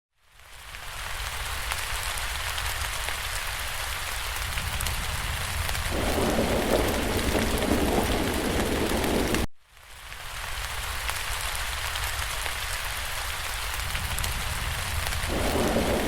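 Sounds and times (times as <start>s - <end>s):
steady rain patter: 0.2s - 16.0s
deep rumble: 14.9s - 16.0s
low rumble: 15.1s - 16.0s.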